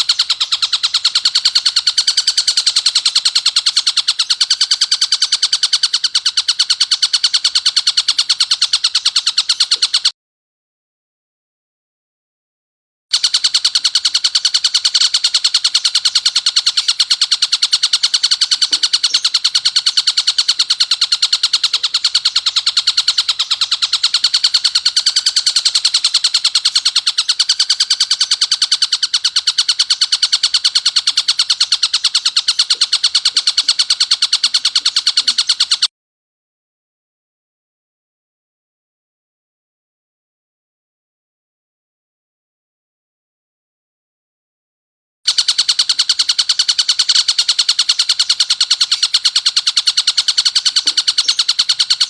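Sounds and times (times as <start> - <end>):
kingfisher harsh rapid chatter: 0.0 - 10.1, 13.1 - 35.9, 45.3 - 52.0.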